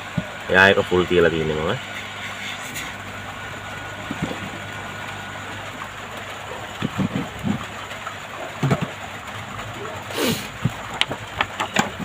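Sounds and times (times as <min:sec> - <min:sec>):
hot air gun hissing: 0:10.1 - 0:10.5.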